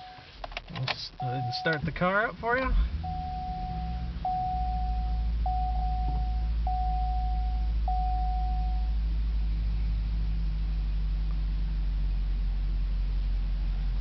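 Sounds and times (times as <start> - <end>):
dashboard warning chime: 0.0 - 0.3, 1.2 - 2.0, 3.0 - 9.0
car engine idling: 0.0 - 14.0.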